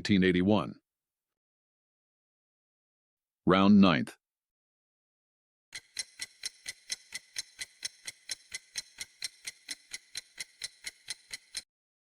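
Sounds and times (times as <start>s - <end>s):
clock ticking: 5.8s - 11.7s.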